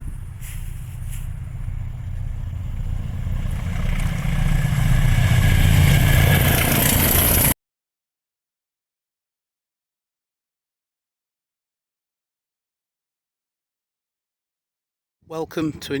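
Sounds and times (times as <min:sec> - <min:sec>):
vehicle engine rumbling: 0:00.0 - 0:07.6.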